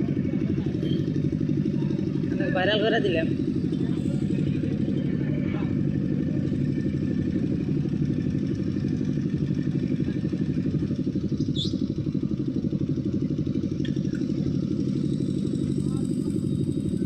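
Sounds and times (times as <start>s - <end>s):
heavy vehicle engine running: 0.0s - 17.0s
high rising chirp: 11.4s - 12.0s.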